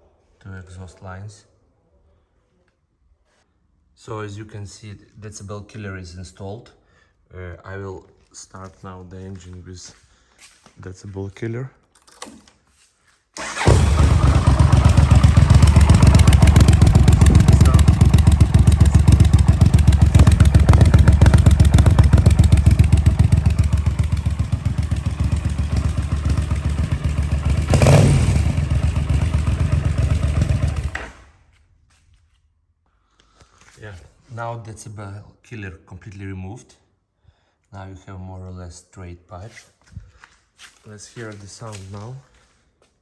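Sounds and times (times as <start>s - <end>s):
motorcycle engine idling: 13.4s - 31.0s
engine revving: 13.4s - 31.2s.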